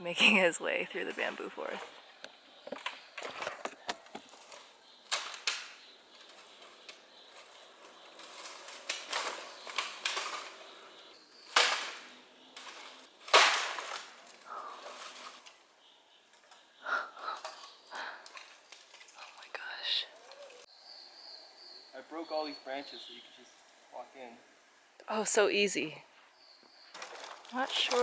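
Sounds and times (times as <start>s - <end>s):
leaves and stems rustling: 0.2s - 20.7s, 22.1s - 28.0s
bamboo branches snapping: 2.8s - 7.0s, 8.2s - 10.7s, 11.4s - 15.6s.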